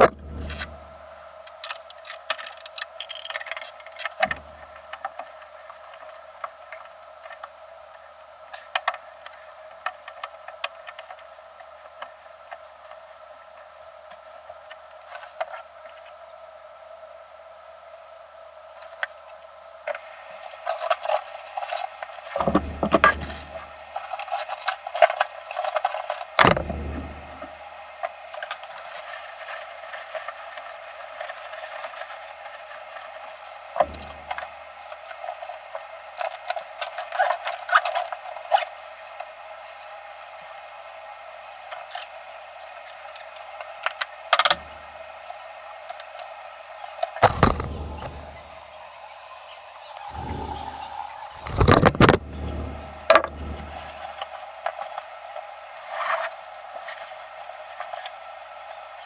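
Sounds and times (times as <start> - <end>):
dull thumps: 0.0 - 0.8, 26.4 - 27.5, 47.2 - 48.5, 50.1 - 54.1.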